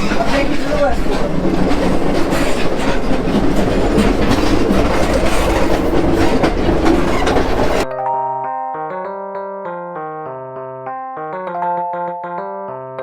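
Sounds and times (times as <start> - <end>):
clicks over rail joints: 0.0 - 7.8
train wheels rumbling on rails: 0.0 - 7.8.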